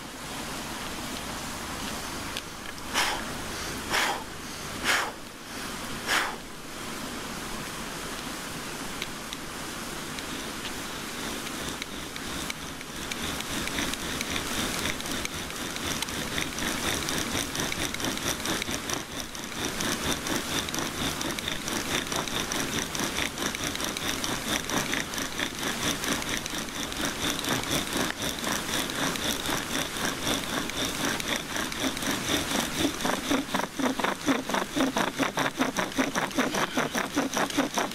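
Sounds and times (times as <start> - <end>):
steady rain: 0.0 - 32.3
bow drill spindle squealing: 11.6 - 37.9.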